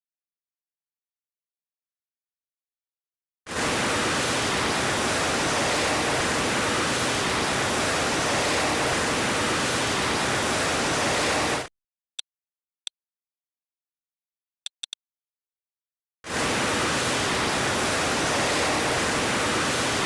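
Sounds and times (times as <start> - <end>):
short clicks: 14.7 - 15.0.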